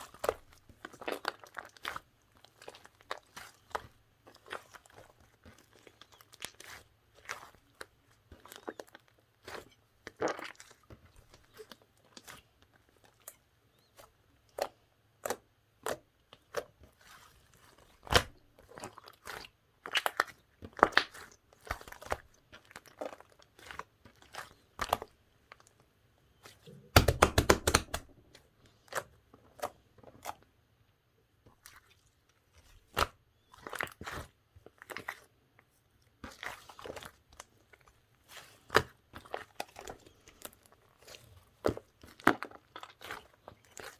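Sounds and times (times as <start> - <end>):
slime crackling and popping: 26.7 - 28.3.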